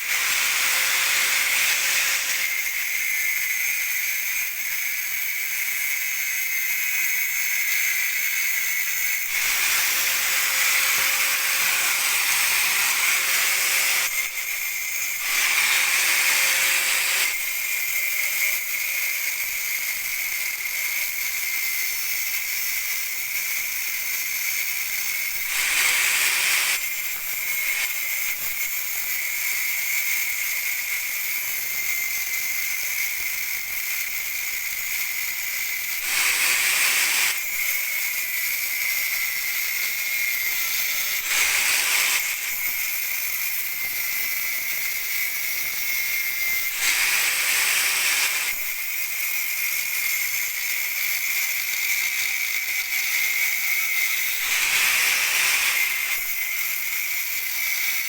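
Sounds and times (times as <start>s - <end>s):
grinder on metal pipe: 0.0s - 58.0s.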